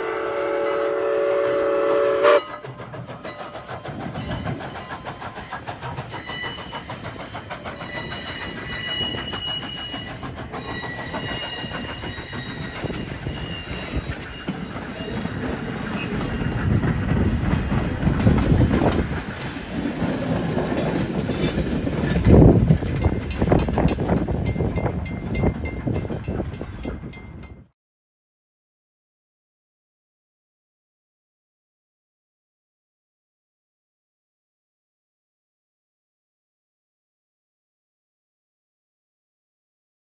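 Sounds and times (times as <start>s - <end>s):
steam locomotive chime whistle: 0.0s - 27.6s
train wheels clattering on rails: 2.1s - 27.7s.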